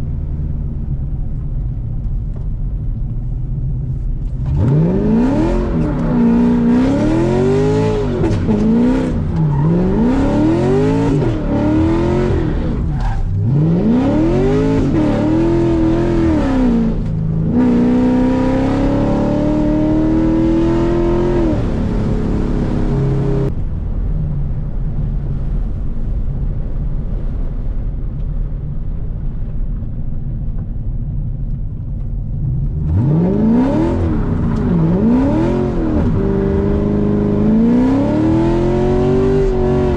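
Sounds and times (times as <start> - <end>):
car engine revving: 4.2 - 23.5, 32.3 - 39.9.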